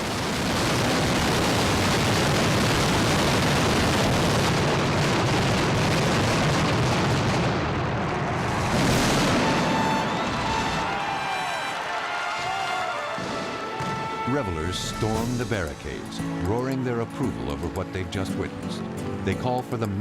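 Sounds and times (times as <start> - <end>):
firework explosions barrage: 0.0 - 15.8
high firework whistles: 8.5 - 15.4.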